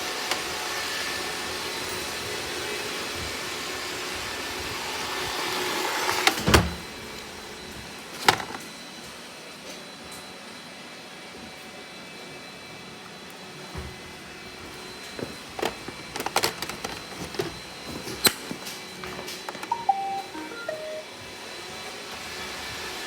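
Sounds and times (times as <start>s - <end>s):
short electronic tones: 19.7s - 21.1s.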